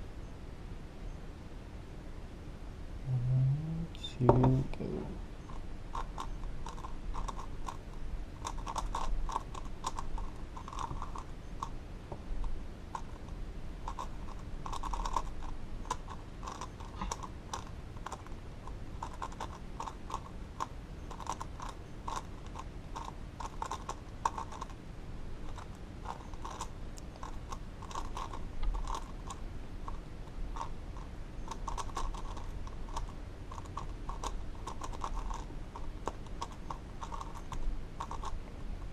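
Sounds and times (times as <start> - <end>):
puzzle cube rapid clicks: 5.5 - 11.8, 12.4 - 24.8, 25.4 - 38.4.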